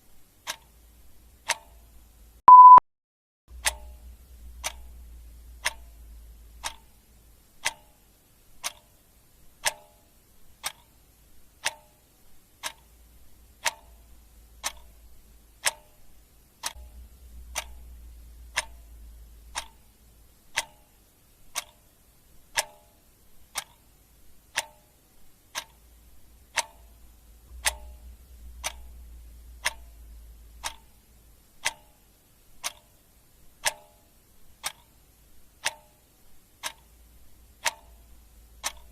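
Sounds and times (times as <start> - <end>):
clock ticking: 0.2 - 2.8, 3.5 - 38.9
faint low rumble: 3.5 - 8.6, 12.2 - 22.6, 23.2 - 33.7, 36.2 - 38.9.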